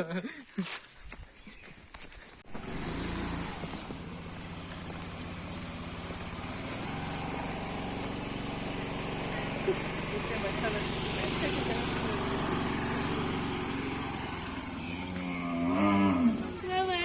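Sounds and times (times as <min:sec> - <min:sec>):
vehicle engine running: 0:02.4 - 0:17.0.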